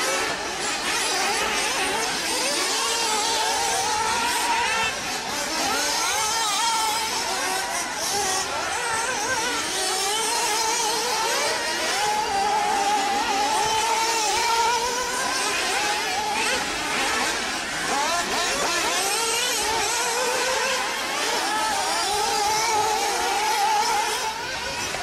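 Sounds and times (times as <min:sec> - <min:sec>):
rc car motors revving: 0:00.0 - 0:25.0.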